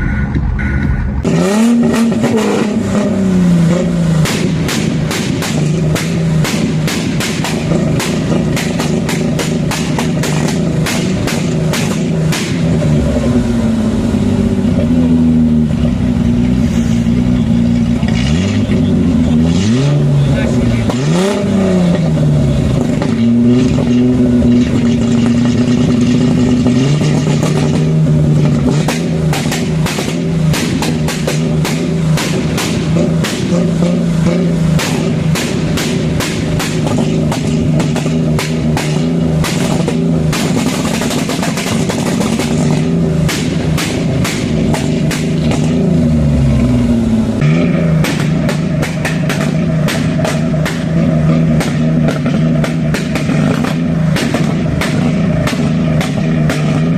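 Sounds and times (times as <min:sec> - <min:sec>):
car engine revving: 0:00.0 - 0:56.9
sharp cracks: 0:03.8 - 0:13.0, 0:20.8 - 0:46.0, 0:47.4 - 0:56.9.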